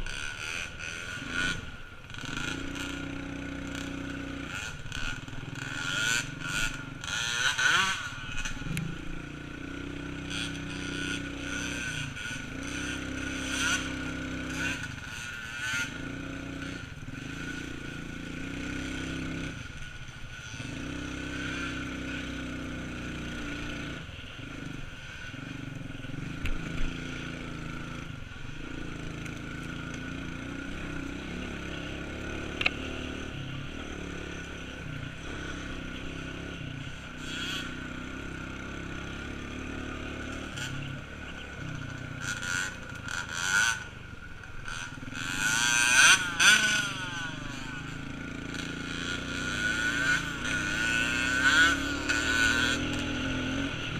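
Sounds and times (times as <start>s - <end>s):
small off-road vehicle engine running: 0.0s - 53.9s.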